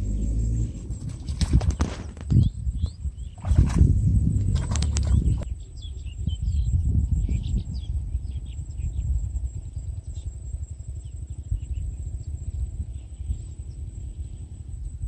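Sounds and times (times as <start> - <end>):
steady low rumble: 0.0 - 5.6
small birds chirping: 0.0 - 14.5.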